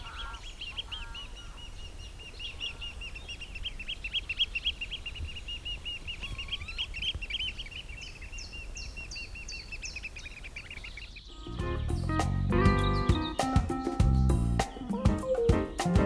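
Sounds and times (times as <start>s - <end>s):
birds calling: 0.0s - 16.0s
short falling bird notes: 11.3s - 16.0s
music: 11.4s - 16.0s.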